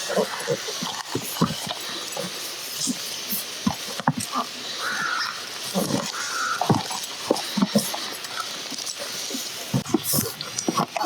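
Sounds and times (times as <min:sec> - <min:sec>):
short animal calls: 0:04.3 - 0:07.9.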